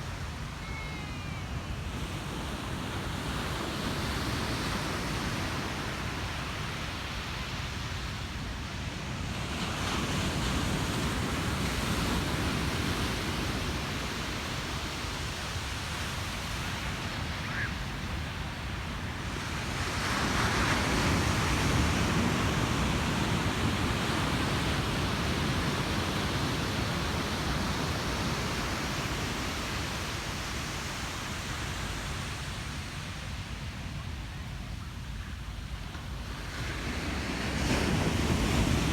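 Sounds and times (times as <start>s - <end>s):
ocean surf breaking on beach: 0.0s - 38.9s.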